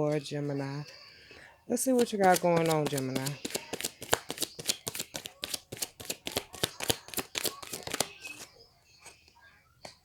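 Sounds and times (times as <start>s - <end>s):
cards being shuffled: 1.9s - 8.5s.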